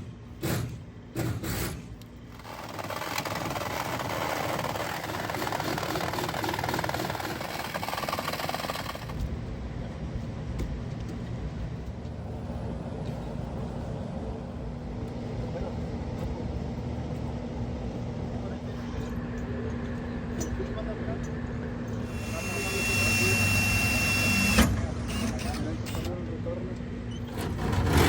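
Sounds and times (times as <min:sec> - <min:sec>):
heavy engine running: 0:02.2 - 0:10.0.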